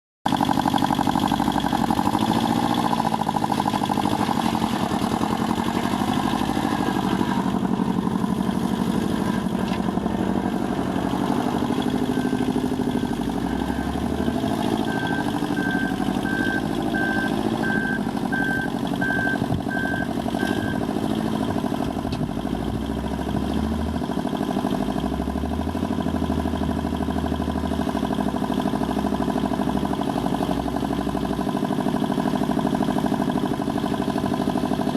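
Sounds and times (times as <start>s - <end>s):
tractor diesel engine running: 0.2s - 34.9s
short high beeps: 14.8s - 20.8s.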